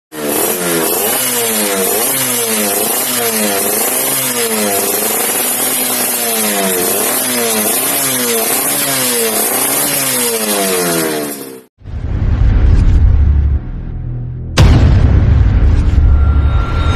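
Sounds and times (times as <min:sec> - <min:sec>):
two-stroke motorcycle engine revving: 0:00.1 - 0:11.7
deep boom: 0:11.8 - 0:16.9.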